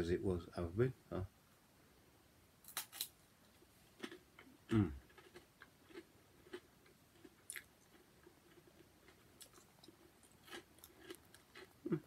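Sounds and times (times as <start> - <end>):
faint chewing of biscuit: 2.7 - 12.0.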